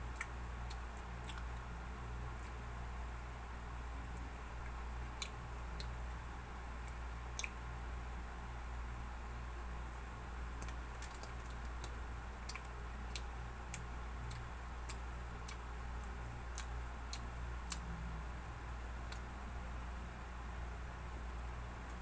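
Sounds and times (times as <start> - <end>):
steady low hum: 0.0 - 22.0
person chewing bread: 0.1 - 1.7, 10.5 - 18.3.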